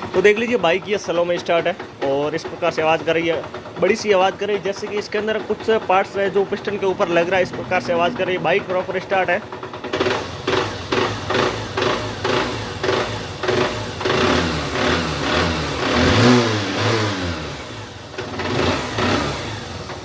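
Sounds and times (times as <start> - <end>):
motorcycle engine knocking: 0.0 - 20.0.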